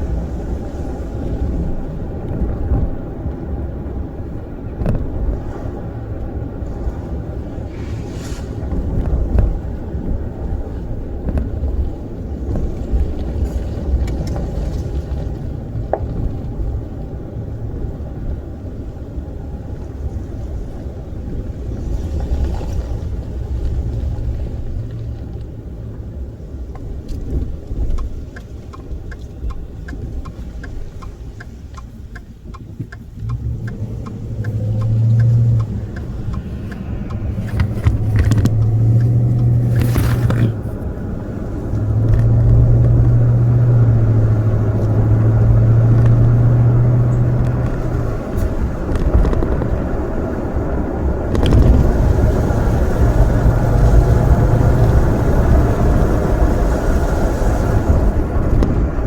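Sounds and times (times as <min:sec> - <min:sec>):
motor vehicle rumble: 0:00.0 - 0:59.0
even ticks: 0:26.7 - 0:40.6
low hum: 0:33.2 - 0:48.3.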